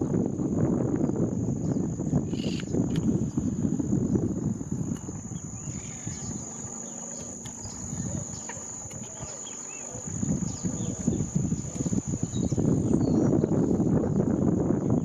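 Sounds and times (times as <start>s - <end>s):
high-pitched insect drone: 0.1s - 15.0s
faint bird calls: 1.7s - 3.6s, 5.3s - 13.5s.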